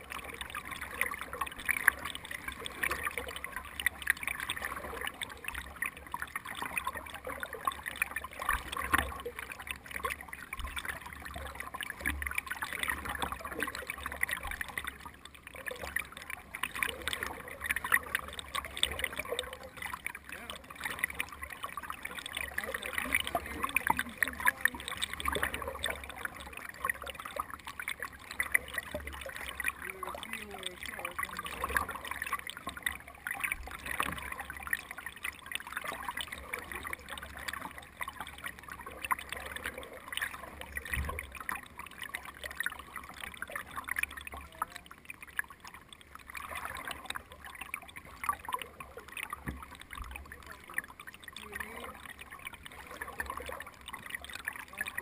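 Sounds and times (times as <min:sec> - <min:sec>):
water splashing and trickling: 0:00.0 - 0:55.0.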